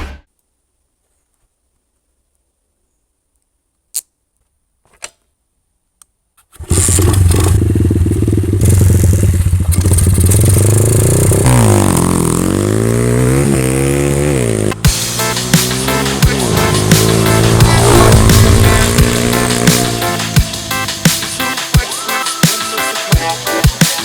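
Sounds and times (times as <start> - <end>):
pit bike engine revving: 6.6 - 21.8.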